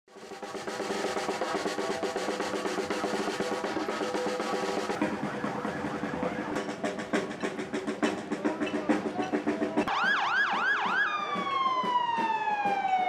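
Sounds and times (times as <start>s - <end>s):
fast drum roll: 0.1s - 13.0s.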